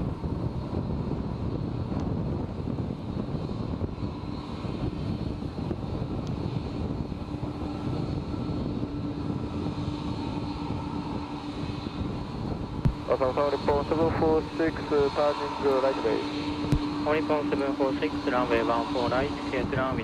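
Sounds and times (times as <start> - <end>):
high engine whine: 0.0 - 20.0
jet engines rushing: 0.0 - 20.0.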